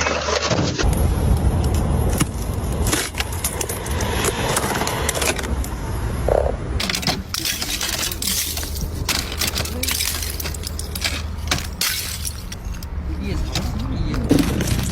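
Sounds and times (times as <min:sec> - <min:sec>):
steady low rumble: 0:00.8 - 0:14.9
ice crunching and cracking: 0:06.8 - 0:14.9.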